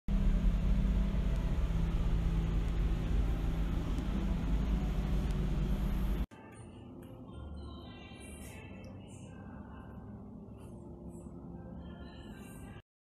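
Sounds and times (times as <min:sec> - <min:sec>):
car engine running steadily: 0:00.1 - 0:06.2.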